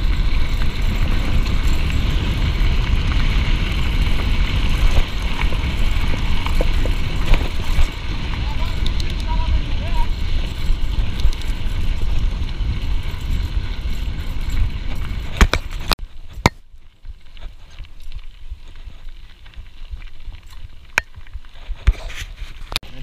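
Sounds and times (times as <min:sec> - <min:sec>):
wind and rough ground rumble: 0:00.0 - 0:23.0.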